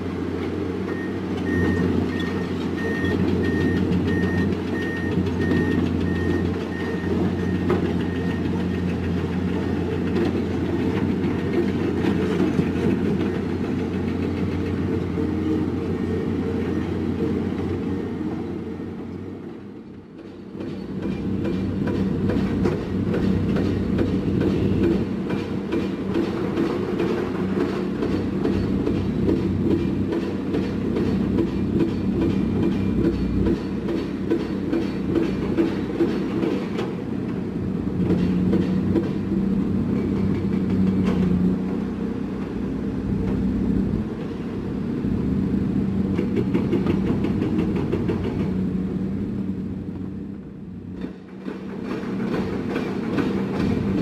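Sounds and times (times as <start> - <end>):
heavy machinery diesel engines: 0.0 - 54.0
reversing beeper: 0.9 - 8.5.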